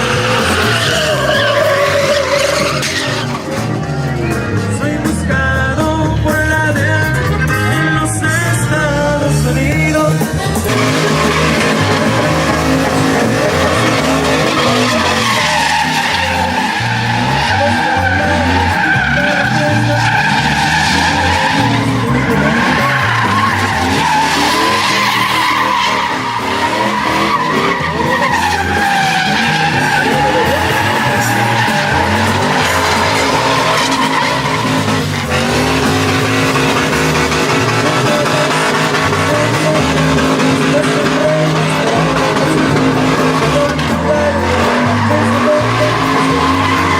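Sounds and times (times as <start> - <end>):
truck engine low rumble: 0.0 - 46.9
truck tyres squealing: 0.0 - 46.9.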